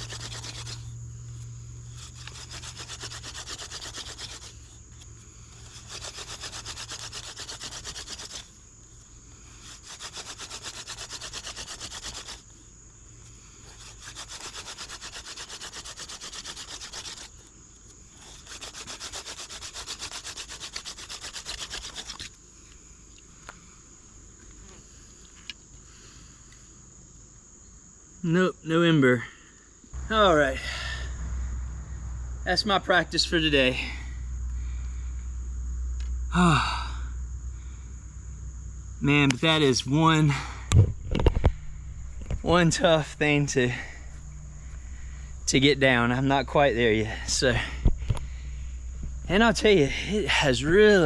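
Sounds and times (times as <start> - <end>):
spindle rubbing on wooden board: 0.0 - 0.9, 2.0 - 4.7, 5.6 - 8.5, 9.6 - 12.4, 13.6 - 17.4, 18.2 - 22.3.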